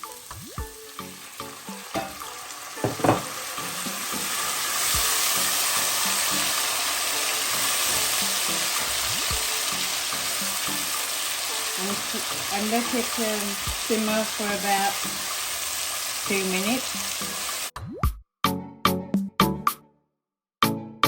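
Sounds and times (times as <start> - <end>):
onions sizzling in oil: 0.0 - 17.7
spoon scraping and knocking pan: 1.9 - 4.2.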